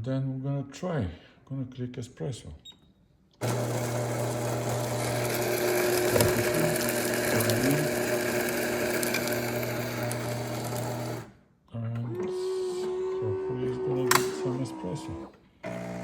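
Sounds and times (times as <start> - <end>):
coffee grinder grinding beans: 3.4 - 11.3, 12.1 - 16.0.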